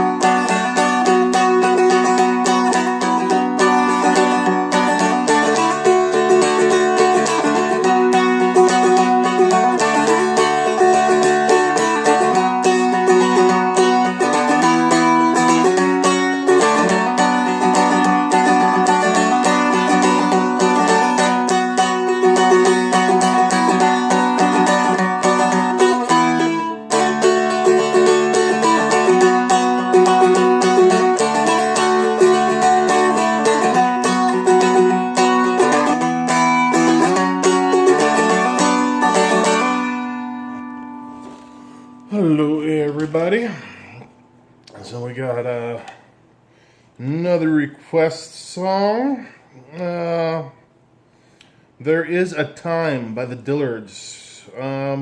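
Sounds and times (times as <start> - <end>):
flatpicked dulcimer melody: 0.0 - 41.9.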